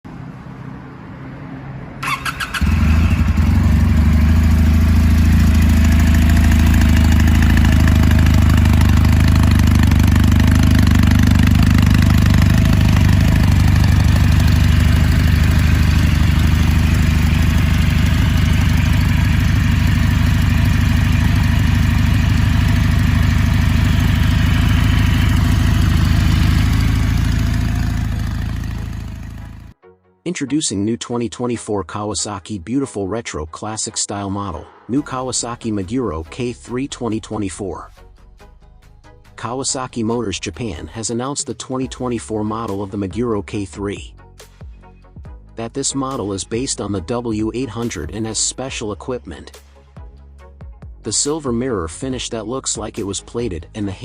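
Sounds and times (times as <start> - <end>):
motorcycle engine cranking: 2.0 - 29.6
motorcycle engine idling: 2.0 - 29.8.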